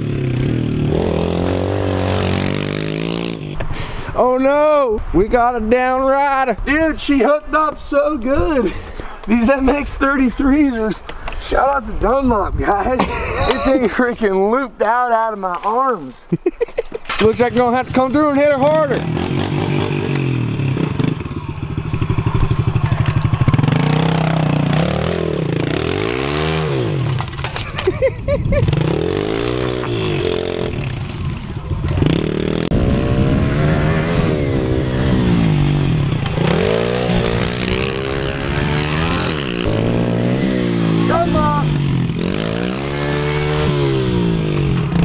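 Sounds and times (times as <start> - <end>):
pit bike engine revving: 0.0 - 3.7, 17.3 - 27.8, 28.5 - 45.0.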